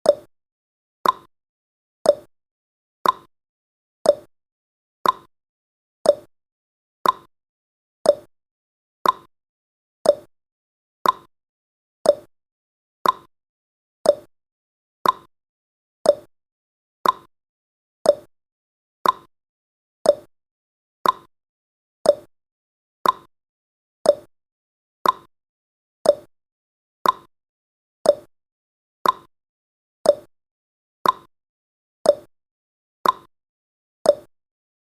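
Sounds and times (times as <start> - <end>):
clock ticking: 1.0 - 1.3, 5.0 - 5.3, 7.0 - 7.3, 8.1 - 8.3, 9.0 - 9.3, 10.1 - 10.3, 11.0 - 11.3, 12.1 - 12.3, 13.0 - 13.3, 14.1 - 14.3, 15.0 - 15.3, 16.1 - 16.3, 17.0 - 17.3, 18.1 - 18.3, 19.0 - 19.3, 20.1 - 20.3, 21.0 - 21.3, 22.1 - 22.3, 23.0 - 23.3, 24.1 - 24.3, 25.0 - 25.3, 26.0 - 26.3, 27.0 - 27.3, 28.1 - 28.3, 29.0 - 29.3, 30.1 - 30.3, 31.0 - 31.3, 32.1 - 32.3, 33.0 - 33.3, 34.1 - 34.3.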